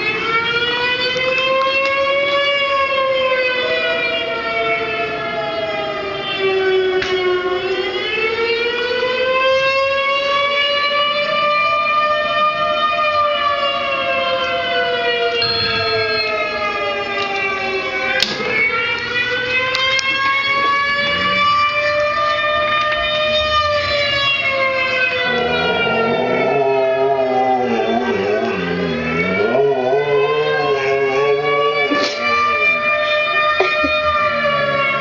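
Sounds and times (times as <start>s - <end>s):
siren wail through speakers: 0.0s - 35.0s
dog howling: 15.4s - 18.2s, 19.8s - 22.2s, 23.1s - 35.0s.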